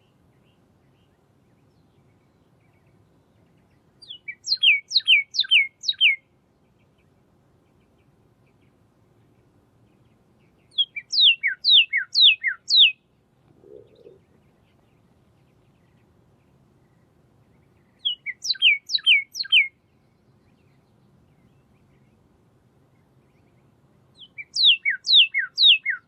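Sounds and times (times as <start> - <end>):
bird singing falling whistles: 10.7 - 13.0, 18.0 - 19.7, 24.3 - 26.0.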